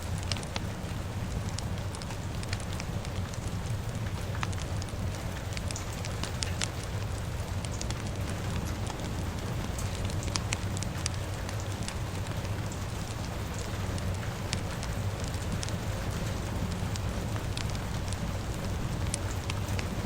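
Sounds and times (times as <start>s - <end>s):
fire crackling and popping: 0.0s - 20.0s
rain hissing: 0.0s - 20.0s.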